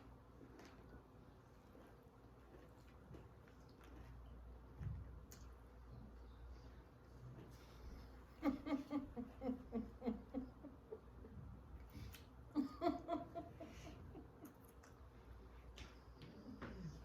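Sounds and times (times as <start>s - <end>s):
woman laughing: 8.3s - 11.4s, 12.5s - 14.7s.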